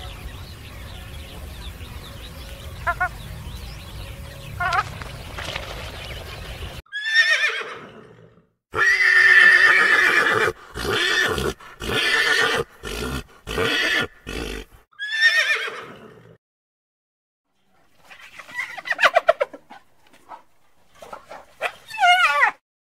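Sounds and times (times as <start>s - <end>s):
horse whinnying: 6.9s - 16.4s.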